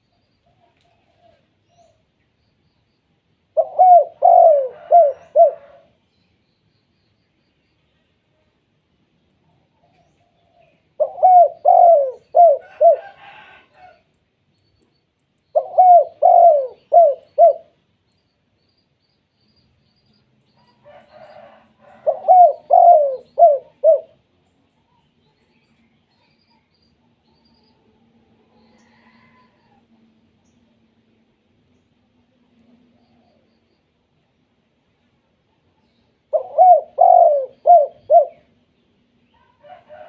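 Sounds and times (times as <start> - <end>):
dove cooing: 3.5 - 5.9, 9.9 - 14.0, 15.5 - 17.8, 20.9 - 24.2, 36.3 - 38.6.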